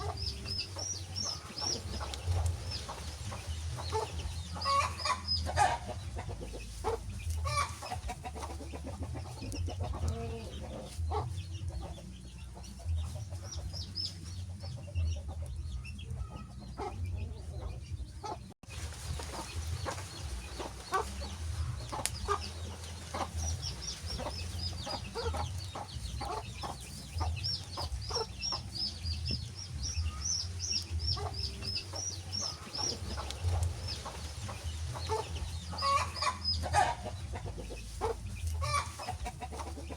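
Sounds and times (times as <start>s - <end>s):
wood fire crackling: 29.8s - 35.4s.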